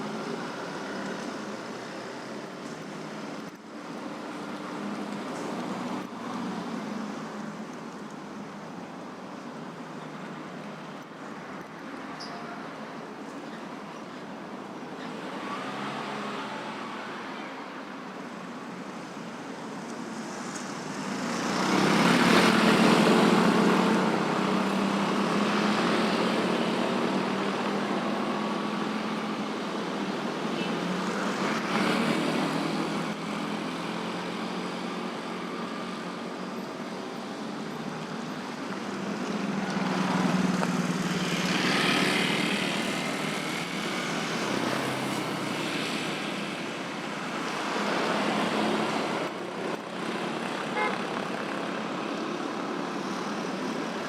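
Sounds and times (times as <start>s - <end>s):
trucks passing: 0.0s - 54.0s
cars passing: 14.5s - 54.0s
motorcycles passing: 18.9s - 54.0s.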